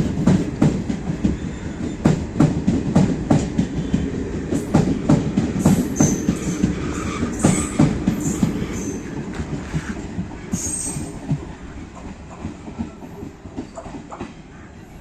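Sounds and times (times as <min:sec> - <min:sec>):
train wheels knocking over rail joints: 0:00.0 - 0:14.4
high wheel squeals: 0:06.0 - 0:09.1, 0:09.8 - 0:11.2.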